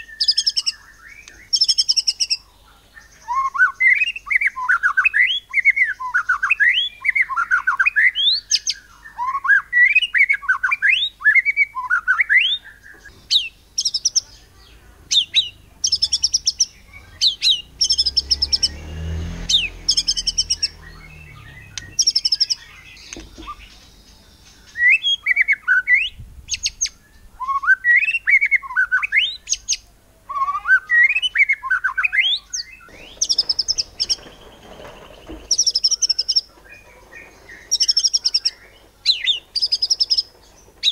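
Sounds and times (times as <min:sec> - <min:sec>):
songbird whistling: 0:00.0 - 0:02.4, 0:03.0 - 0:14.2, 0:15.1 - 0:18.8, 0:19.4 - 0:34.4
bird rapid high-pitched notes: 0:15.2 - 0:24.0.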